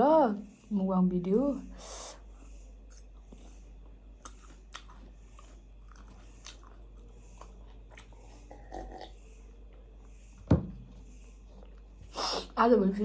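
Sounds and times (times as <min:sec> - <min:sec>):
steady low hum: 0:00.0 - 0:13.0
chewing and biting: 0:02.9 - 0:09.1.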